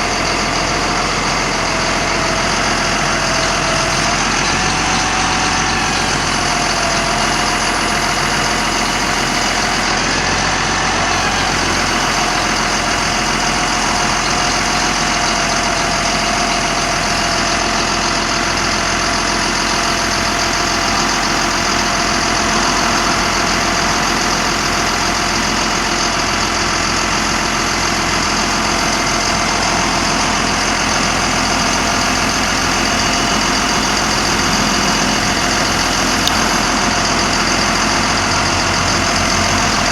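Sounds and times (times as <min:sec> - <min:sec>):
thin steady whine: 0:00.0 - 0:10.2, 0:10.9 - 0:26.1
diesel truck engine idling: 0:00.0 - 0:39.9.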